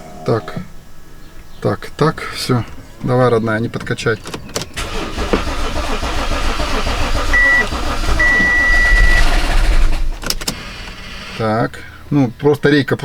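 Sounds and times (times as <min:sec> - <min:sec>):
car engine cranking on starter: 0:02.4 - 0:12.0.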